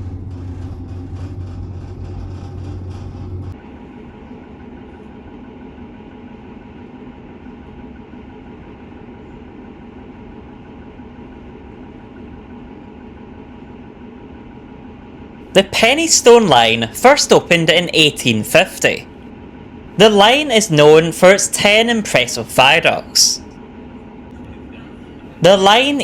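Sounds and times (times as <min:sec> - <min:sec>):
rail noise: 0:00.0 - 0:04.8, 0:05.4 - 0:26.0
diesel train engine running: 0:00.0 - 0:26.0
low hum with clicking: 0:00.0 - 0:26.0.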